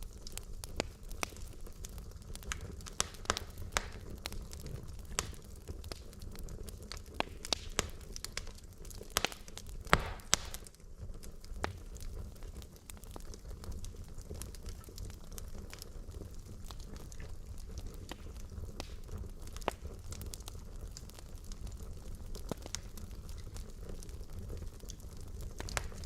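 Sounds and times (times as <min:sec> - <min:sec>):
fire crackling and popping: 0:00.0 - 0:26.0
low rumble of flames: 0:00.0 - 0:26.0
fire hiss: 0:07.2 - 0:12.6.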